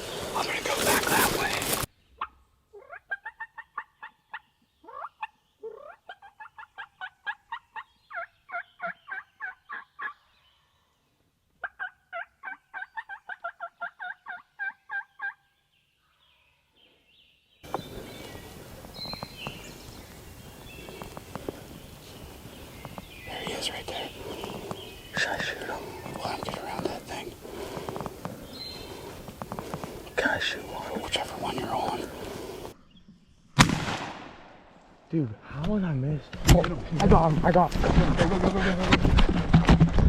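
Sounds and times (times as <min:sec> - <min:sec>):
turkeys gobbling: 0:02.2 - 0:10.2, 0:11.6 - 0:15.4
steady hiss: 0:17.7 - 0:32.8.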